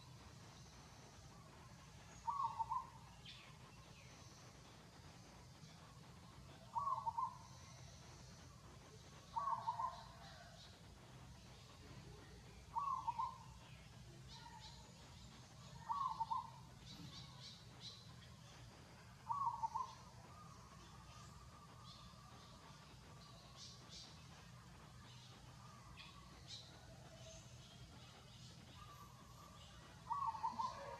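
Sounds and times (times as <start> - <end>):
small birds chirping: 0.0 - 30.9
bird hooting call: 2.2 - 3.0, 6.7 - 7.4, 9.3 - 10.5, 12.7 - 13.4, 15.8 - 16.6, 19.3 - 20.4, 30.1 - 30.9.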